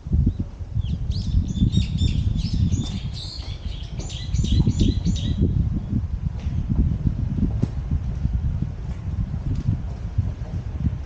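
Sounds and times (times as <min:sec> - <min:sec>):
small songbirds chirping: 0:00.2 - 0:06.0
low rumble: 0:03.8 - 0:11.0.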